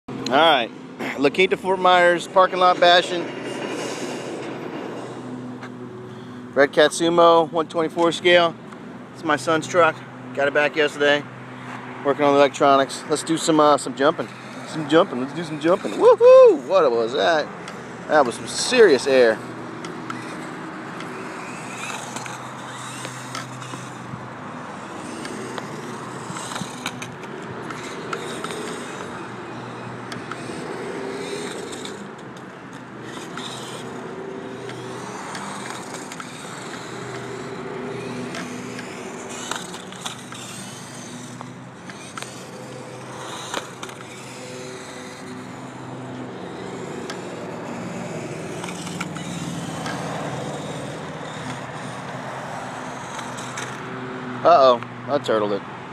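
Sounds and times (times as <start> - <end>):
tyres rolling on pavement: 0.1 - 55.9
toy car motor whining: 1.3 - 6.4, 11.6 - 55.4
toy truck clacking on ground: 17.3 - 53.8.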